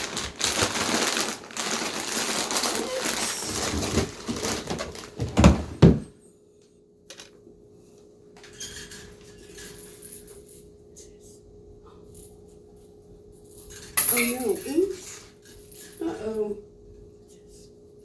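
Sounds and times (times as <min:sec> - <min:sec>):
bird rattling ball toy: 0:13.6 - 0:16.0.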